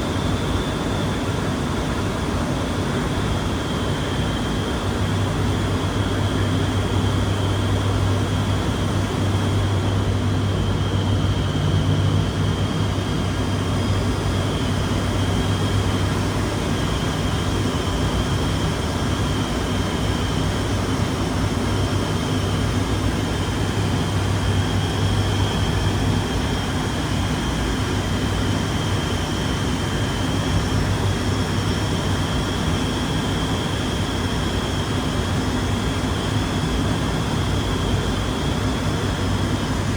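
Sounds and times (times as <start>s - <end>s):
propeller drone: 0.0s - 39.9s
high engine whine: 4.3s - 18.8s.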